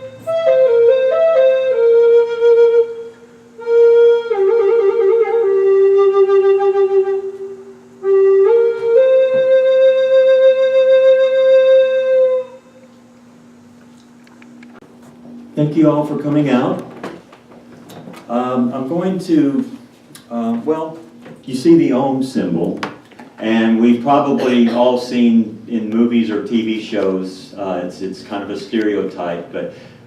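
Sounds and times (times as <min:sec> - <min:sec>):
flute melody: 0:00.0 - 0:12.9.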